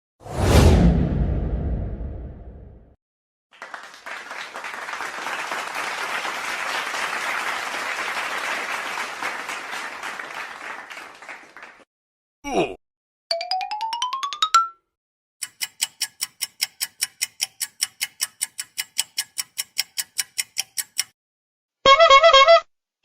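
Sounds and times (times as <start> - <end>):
crowd applauding: 3.5 - 11.9.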